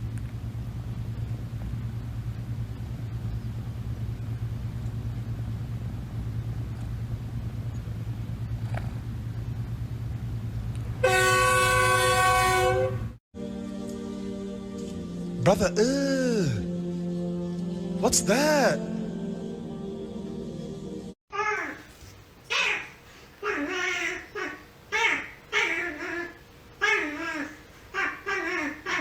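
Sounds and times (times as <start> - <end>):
loud chord horn: 11.0 - 21.1.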